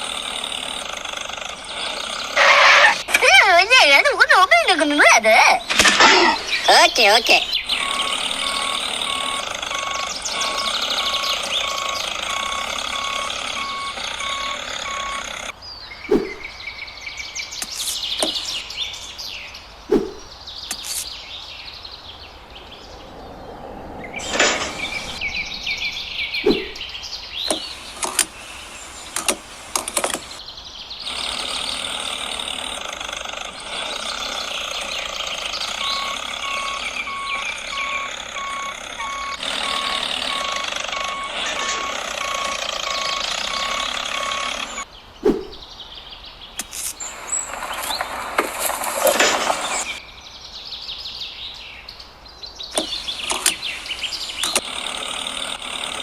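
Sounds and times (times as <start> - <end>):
birds chirping: 0.0 - 56.0
repeating electronic beep: 7.7 - 15.5, 35.8 - 44.8
short low thumps: 25.1 - 26.9.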